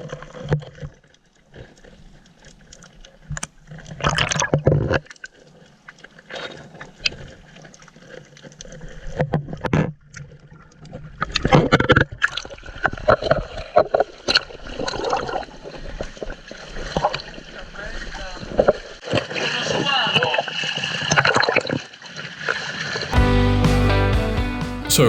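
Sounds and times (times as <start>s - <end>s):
water sloshing and gurgling: 0.0s - 23.1s
water splashes: 12.2s - 23.2s.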